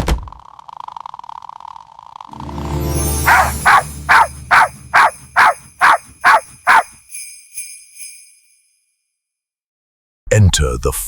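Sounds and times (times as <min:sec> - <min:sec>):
jingle bells shaken: 0:02.3 - 0:08.8.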